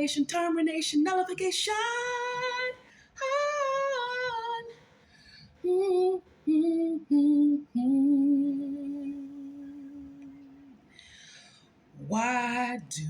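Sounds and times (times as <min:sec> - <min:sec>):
woman singing unaccompanied: 0:00.0 - 0:04.8, 0:05.6 - 0:10.8, 0:12.0 - 0:13.0.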